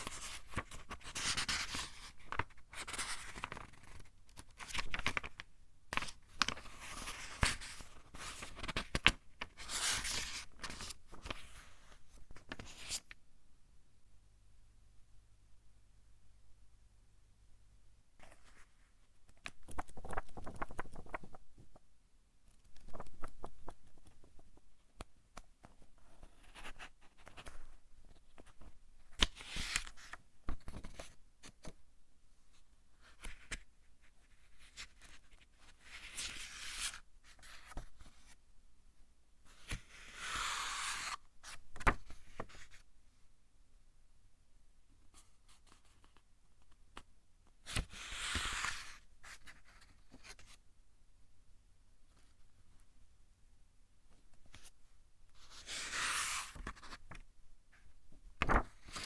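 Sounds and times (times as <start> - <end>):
book pages turning: 0.0 - 5.4, 55.8 - 57.2, 58.4 - 59.0.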